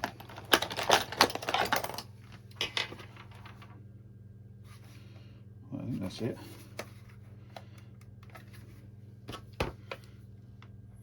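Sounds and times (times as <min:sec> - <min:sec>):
plastic casing clicks and clatter: 0:00.0 - 0:03.5.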